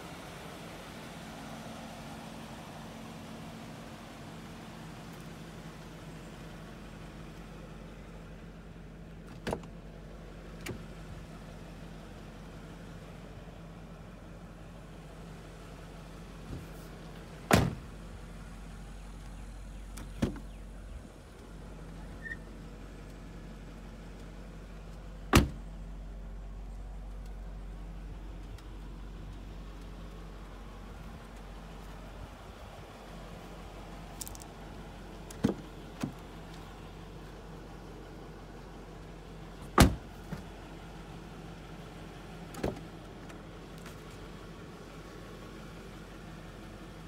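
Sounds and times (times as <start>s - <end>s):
car engine idling: 0.0s - 47.0s
car doors clunking: 9.2s - 9.8s, 17.4s - 17.9s, 19.9s - 20.6s, 25.3s - 25.7s, 35.3s - 36.2s, 39.6s - 40.5s, 42.5s - 43.4s.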